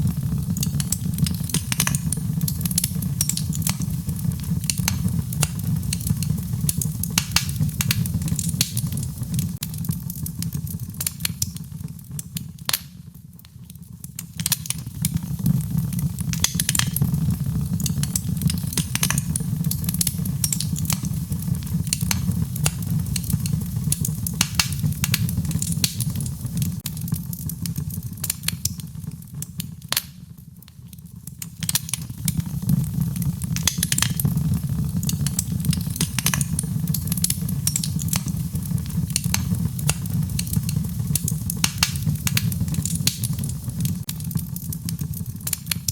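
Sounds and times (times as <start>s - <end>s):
wood fire crackling and popping: 0.0s - 45.9s
rain: 31.6s - 45.9s.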